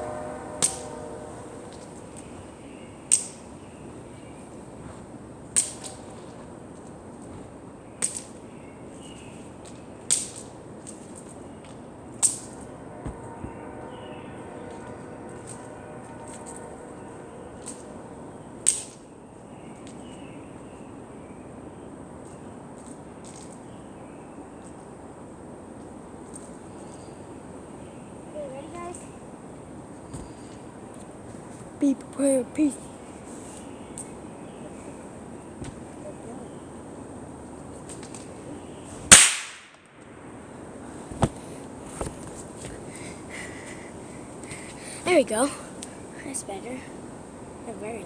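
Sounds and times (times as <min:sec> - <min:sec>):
firecracker bang: 0:39.0 - 0:39.7.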